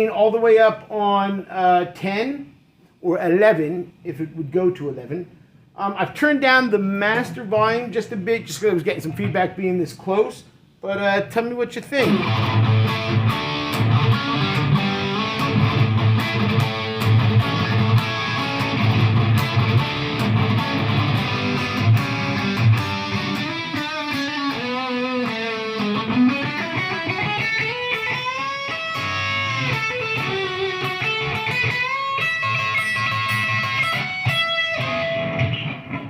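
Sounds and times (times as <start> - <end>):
distorted electric guitar: 12.0 - 36.0.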